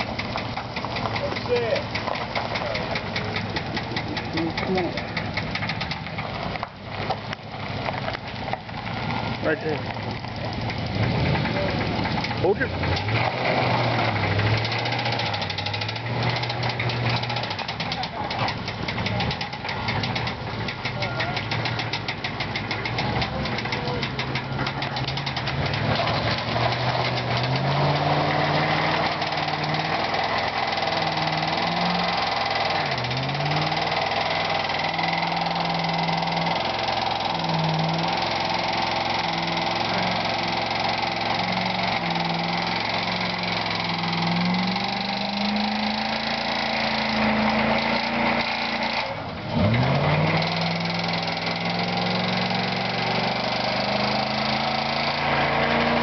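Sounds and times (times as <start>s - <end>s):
car engine at high revs: 0.0s - 56.0s
engine knocking: 0.0s - 56.0s.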